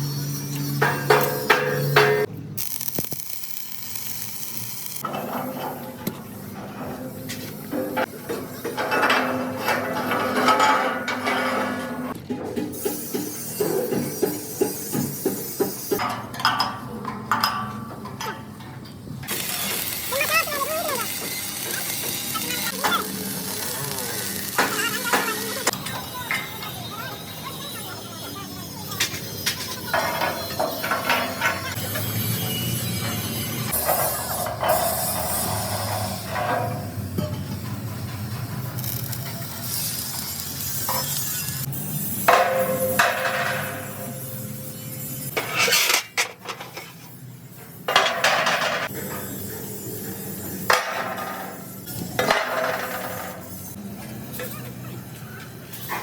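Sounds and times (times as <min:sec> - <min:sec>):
metal being struck: 0:42.2 - 0:44.6.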